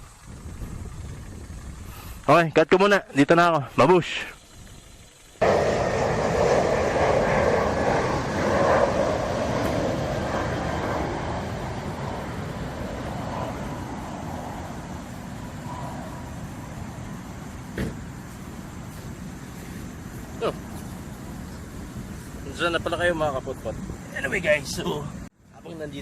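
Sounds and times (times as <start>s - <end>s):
road traffic noise: 5.4s - 25.9s.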